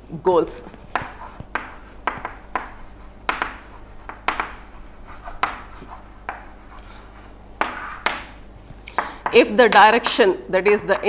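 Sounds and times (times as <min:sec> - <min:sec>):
faint steady hum: 0:00.0 - 0:11.0
pen taps and scrapes writing: 0:00.9 - 0:06.8, 0:07.6 - 0:08.3.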